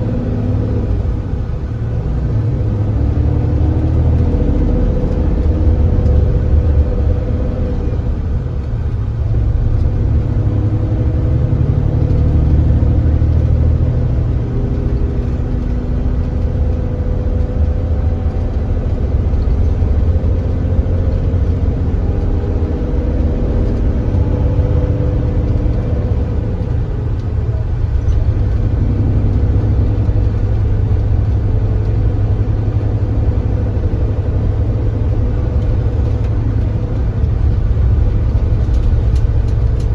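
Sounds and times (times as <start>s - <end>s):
coach engine running: 0.0s - 39.9s
road rumble: 0.0s - 39.9s.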